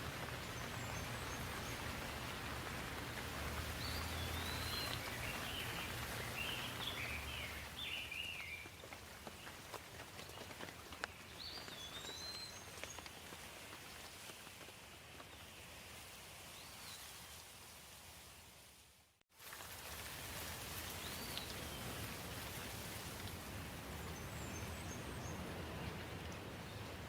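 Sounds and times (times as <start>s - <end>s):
water dripping: 0.0s - 13.1s, 19.4s - 27.0s
songbirds chirping: 0.0s - 13.8s, 23.8s - 27.0s
steady rain: 0.0s - 27.0s.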